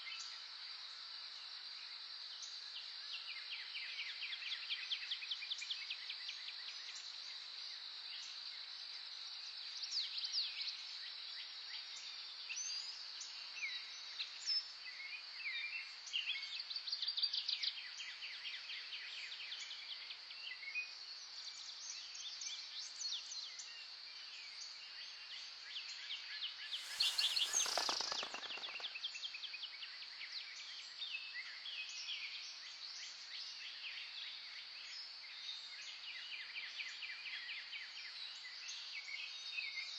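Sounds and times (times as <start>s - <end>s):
high-pitched insect drone: 26.8s - 28.9s
small birds chirping and trilling: 26.8s - 28.9s.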